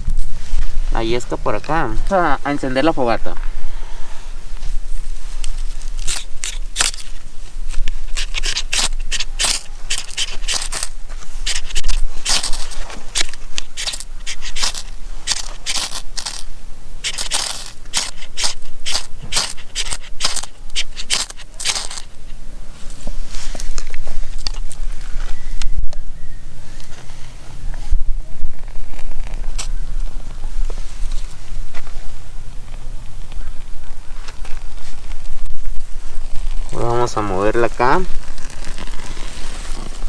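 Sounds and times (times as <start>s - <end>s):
knife scraping ferrocerium rod: 5.9s - 22.1s.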